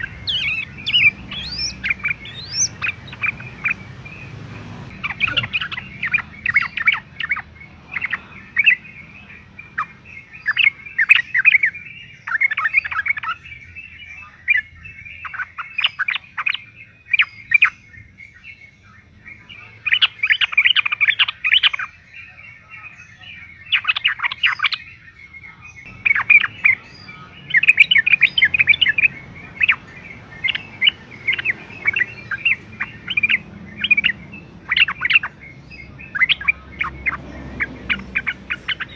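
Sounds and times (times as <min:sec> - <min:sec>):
bird chirping: 0:00.0 - 0:38.9.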